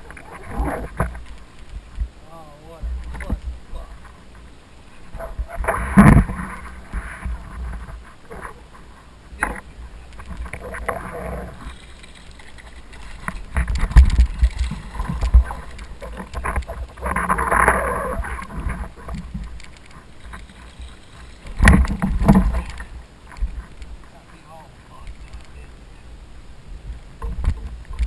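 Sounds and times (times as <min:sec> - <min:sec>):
water sloshing around kayak: 0:00.0 - 0:26.2
wind on microphone: 0:05.0 - 0:12.0, 0:12.6 - 0:24.2, 0:24.9 - 0:28.0
small clicks: 0:09.4 - 0:24.2, 0:25.0 - 0:25.7.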